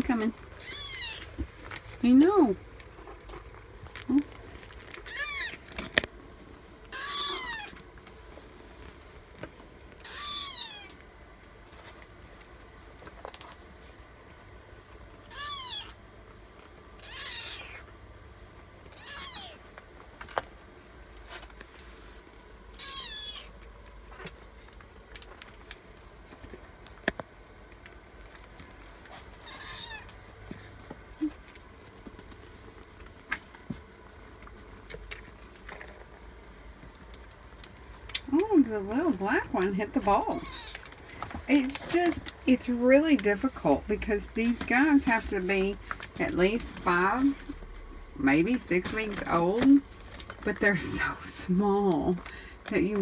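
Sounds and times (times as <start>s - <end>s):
kittens meowing: 0.6s - 1.4s, 5.0s - 5.7s, 6.9s - 7.8s, 10.0s - 11.0s, 15.3s - 16.0s, 17.0s - 17.9s, 19.0s - 19.6s, 22.8s - 23.6s, 29.4s - 30.1s, 40.3s - 40.9s.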